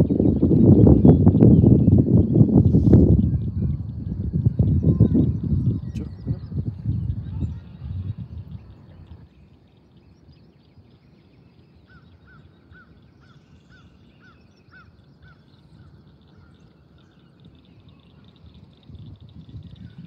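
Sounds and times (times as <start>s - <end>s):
low rumble: 0.0s - 9.3s.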